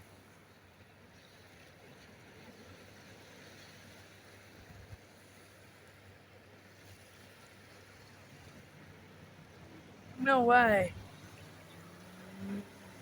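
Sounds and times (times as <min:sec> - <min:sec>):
ocean surf: 0:08.5 - 0:13.0.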